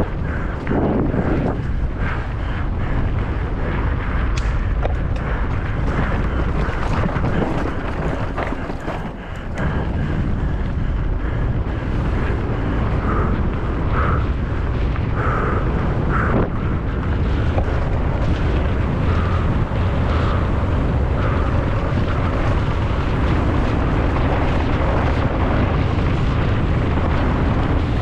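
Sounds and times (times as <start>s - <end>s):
wind buffeting microphone: 0.0s - 28.0s
bike clicks and knocks: 4.4s - 10.2s.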